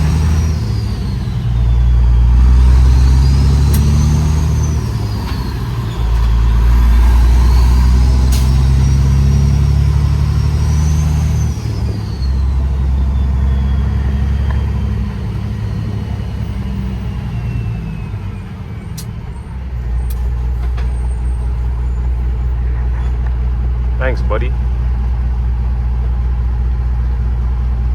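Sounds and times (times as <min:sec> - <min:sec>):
diesel truck engine running: 0:00.0 - 0:27.9.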